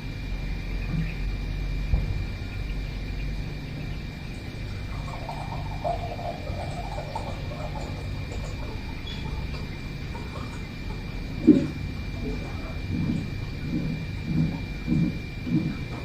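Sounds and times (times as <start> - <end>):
low rumble: 11.1 - 16.0.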